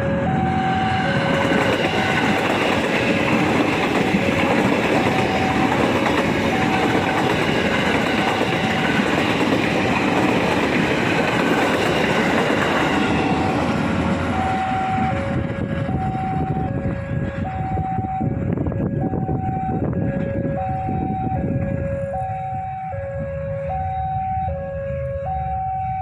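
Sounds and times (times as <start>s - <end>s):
two-tone warning alarm: 0.0s - 26.0s
train wheels clattering over rail joints: 1.2s - 14.4s.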